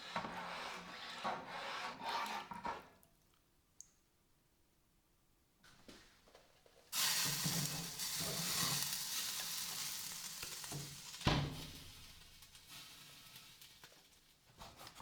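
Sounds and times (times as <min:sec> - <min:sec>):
hot blade sizzling in oil: 0:07.0 - 0:14.2.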